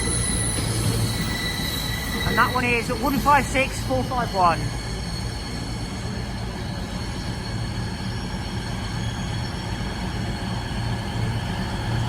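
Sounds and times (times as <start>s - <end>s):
high whine: 0.0s - 6.3s
diesel train engine hum: 0.0s - 12.0s.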